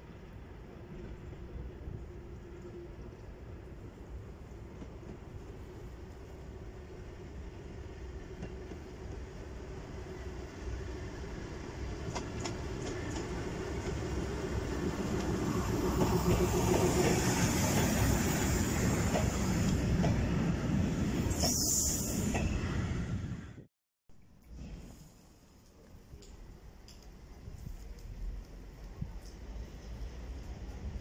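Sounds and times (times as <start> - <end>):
carriages rolling past on rails: 0.0 - 23.4
diesel locomotive approaching: 7.2 - 23.6.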